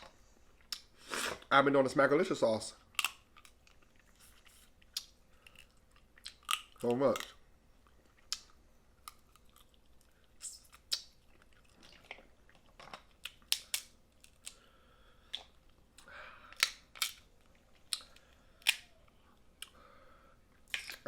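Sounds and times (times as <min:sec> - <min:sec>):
crab shells cracking: 0:02.8 - 0:04.0, 0:04.8 - 0:07.4, 0:08.2 - 0:10.0, 0:12.6 - 0:14.6, 0:16.5 - 0:19.0
chewing: 0:03.0 - 0:14.6.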